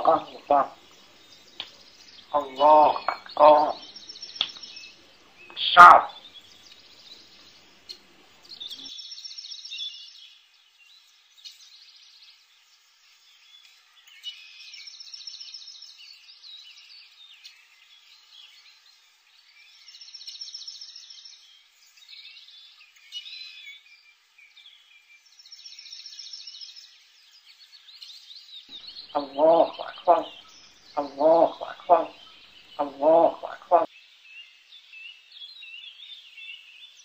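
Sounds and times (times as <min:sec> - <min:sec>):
bird chirping and trilling: 0:00.0 - 0:07.4, 0:28.7 - 0:33.9.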